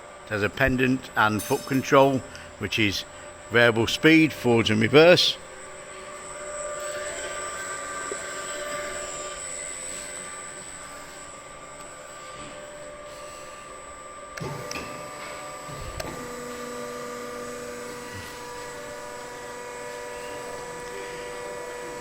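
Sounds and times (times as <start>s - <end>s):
industrial machine hum: 0.0s - 22.0s
machine clunks: 14.4s - 16.4s.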